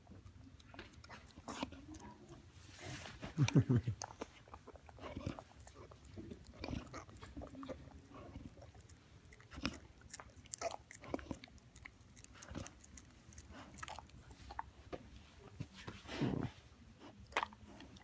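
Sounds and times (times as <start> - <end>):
chewing crunches and clicks: 0.0 - 2.4, 3.9 - 14.7, 17.2 - 18.0.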